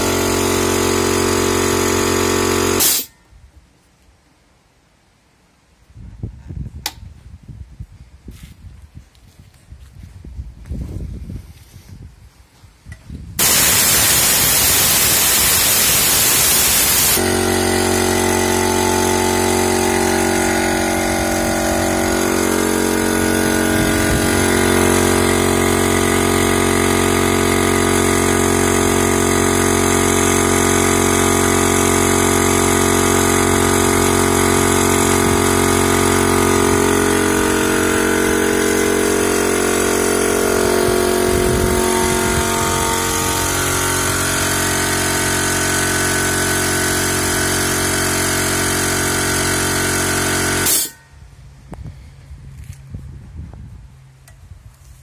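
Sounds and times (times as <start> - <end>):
air compressor motor running: 0.0 - 3.1, 13.3 - 53.6
harsh air hiss: 2.8 - 3.1, 13.4 - 17.2.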